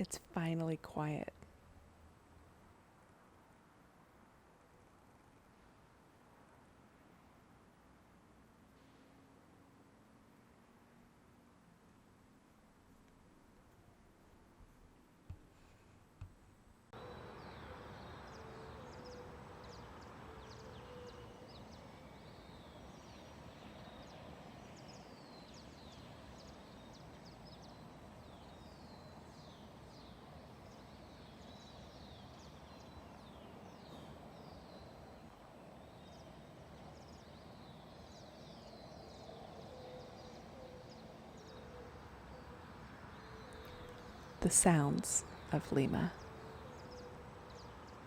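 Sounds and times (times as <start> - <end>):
distant city hum: 0.0 - 48.0
small birds chirping: 17.0 - 48.0.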